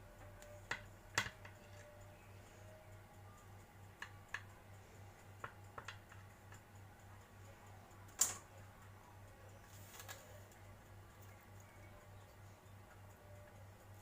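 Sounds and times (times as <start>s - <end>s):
utensil tapping on a plate: 5.4s - 6.7s.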